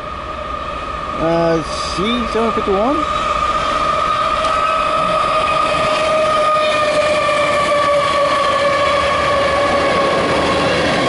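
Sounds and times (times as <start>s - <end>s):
high-pitched train whine: 0.0s - 11.0s
train rumbling past: 0.0s - 11.0s.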